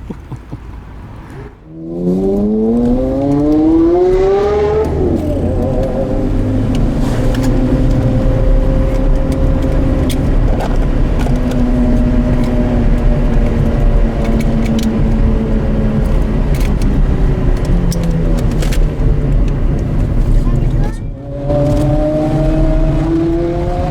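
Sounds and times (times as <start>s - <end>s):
sports car engine running: 0.0s - 23.9s
clicks: 2.2s - 23.5s.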